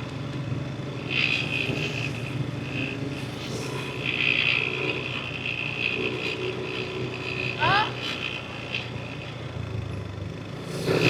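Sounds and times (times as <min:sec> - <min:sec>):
road and wind noise: 0:00.0 - 0:11.0
scooter engine running: 0:00.0 - 0:11.0
high hiss: 0:10.6 - 0:11.0.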